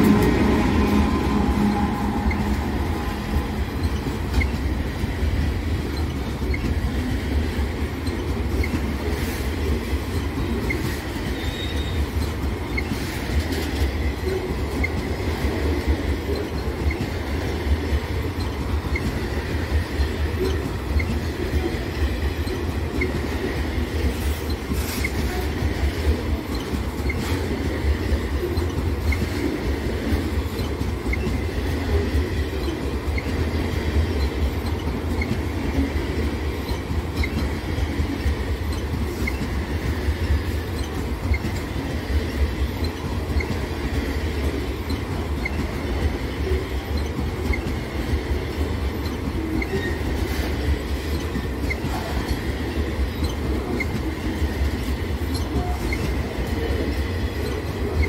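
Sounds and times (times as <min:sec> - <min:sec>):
locomotive engine: 0:00.0 - 0:10.8
freight train wheels rumbling: 0:00.0 - 0:58.0.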